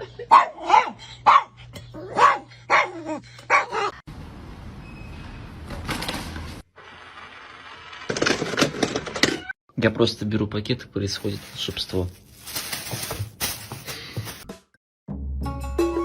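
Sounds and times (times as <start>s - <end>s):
dog barking: 0.3s - 4.0s.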